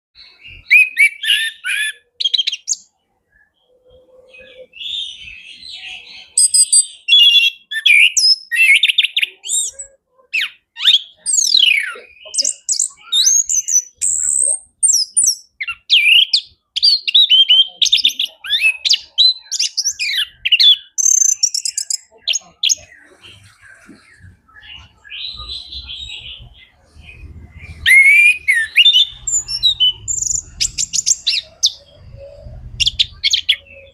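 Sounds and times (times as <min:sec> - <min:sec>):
thrush singing: 0:22.4 - 0:33.9.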